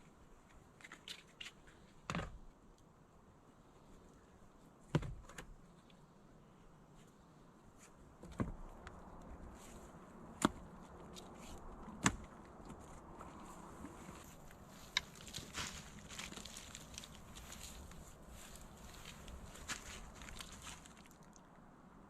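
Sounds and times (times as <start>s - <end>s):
faint steady background noise: 0.0s - 22.0s.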